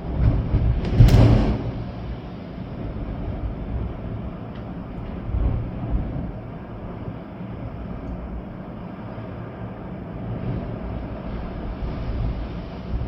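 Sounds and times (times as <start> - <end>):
wind buffeting microphone: 0.0 - 8.8
rain: 0.0 - 13.0.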